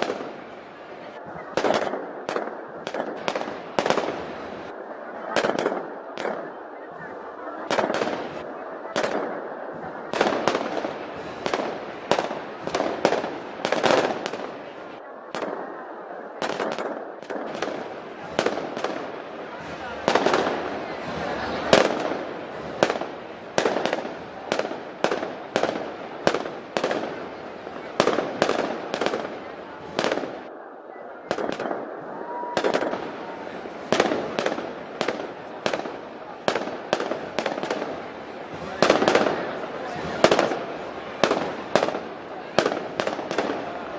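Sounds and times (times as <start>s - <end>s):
crowd talking: 0.0s - 43.9s
firecracker bangs: 7.7s - 15.5s, 16.4s - 30.5s, 31.3s - 43.9s.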